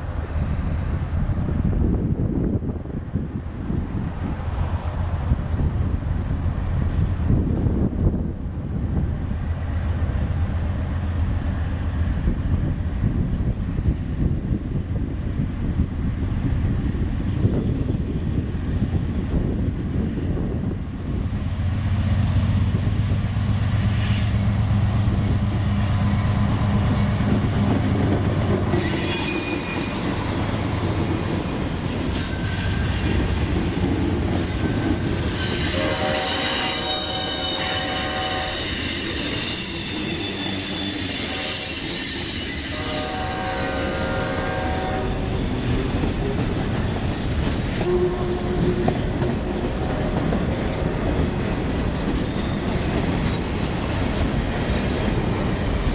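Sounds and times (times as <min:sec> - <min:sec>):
diesel locomotive hum: 0:00.0 - 0:55.9
train wheel squeal: 0:00.2 - 0:01.2, 0:23.8 - 0:24.4, 0:26.0 - 0:30.9, 0:31.8 - 0:33.8, 0:34.4 - 0:50.4, 0:51.9 - 0:53.8
rail clatter: 0:21.8 - 0:43.1, 0:44.9 - 0:55.9
train horn: 0:35.4 - 0:50.5.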